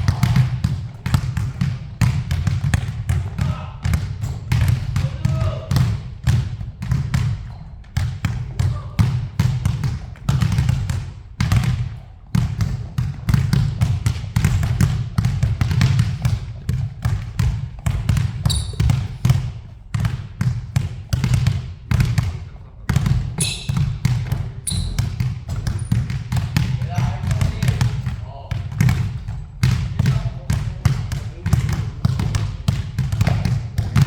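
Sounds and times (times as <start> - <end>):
basketball bouncing: 0.0 - 34.0
shoe squeaks: 18.4 - 19.3, 23.4 - 24.0, 24.6 - 26.0.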